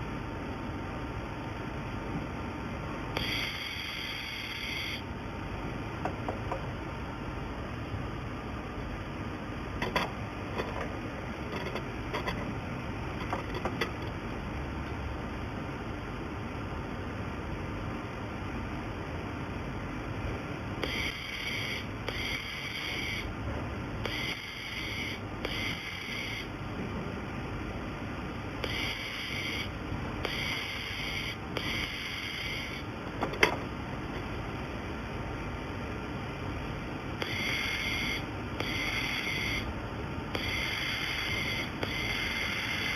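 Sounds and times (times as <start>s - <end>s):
steady machine noise: 0.0s - 16.1s, 19.4s - 42.9s
welding machine running: 3.2s - 5.1s, 20.8s - 23.3s, 24.0s - 26.6s, 28.6s - 33.0s, 37.2s - 39.7s, 40.4s - 42.9s.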